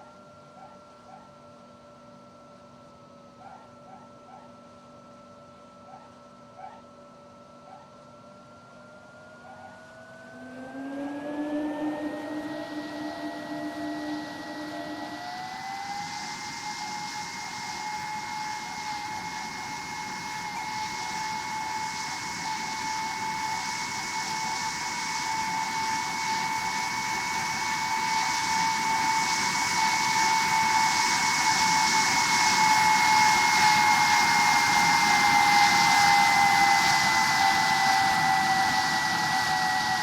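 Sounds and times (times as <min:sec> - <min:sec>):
jet engines whining: 0:09.1 - 0:40.0.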